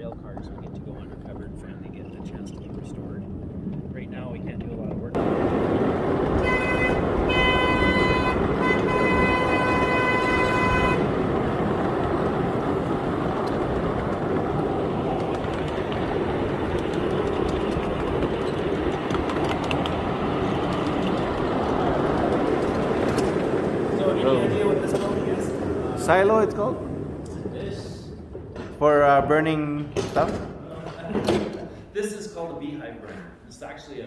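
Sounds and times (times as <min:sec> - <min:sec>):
train rumbling on track: 0:00.0 - 0:28.7
train horn: 0:06.3 - 0:11.3.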